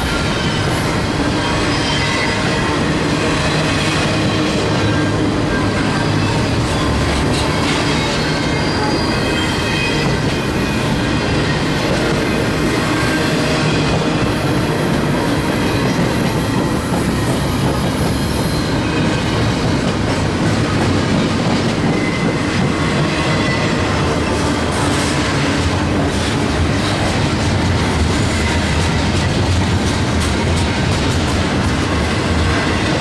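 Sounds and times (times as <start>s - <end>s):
high wheel squeal: 0.0s - 19.8s
train wheels clattering on track: 0.0s - 33.0s.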